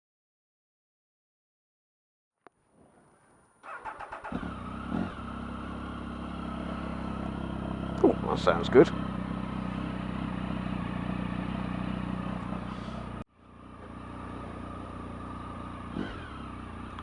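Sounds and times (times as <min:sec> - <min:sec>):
motorcycle engine running: 0:03.7 - 0:17.0.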